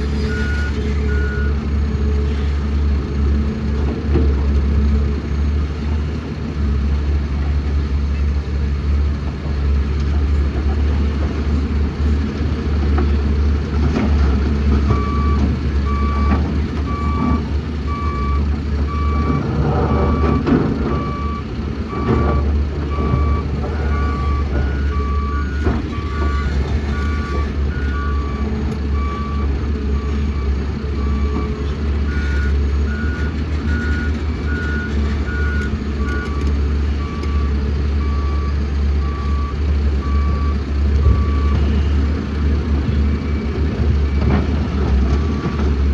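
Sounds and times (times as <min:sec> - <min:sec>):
diesel engines rumbling: 0:00.0 - 0:45.9
reversing alarm beeping: 0:00.2 - 0:01.6, 0:14.9 - 0:42.0.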